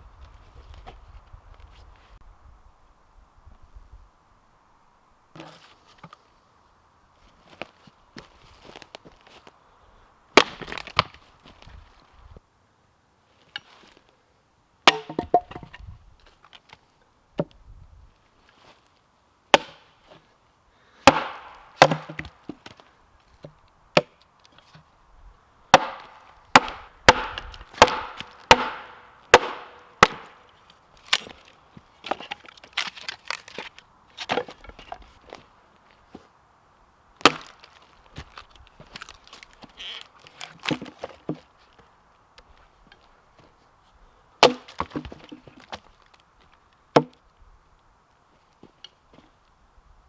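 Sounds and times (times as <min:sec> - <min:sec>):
firewood being chopped: 0:07.5 - 0:09.5, 0:10.3 - 0:11.8, 0:14.8 - 0:15.8, 0:19.5 - 0:20.2, 0:21.0 - 0:22.8, 0:23.4 - 0:24.8, 0:25.7 - 0:35.4, 0:37.2 - 0:41.5, 0:44.4 - 0:46.2, 0:46.9 - 0:47.2.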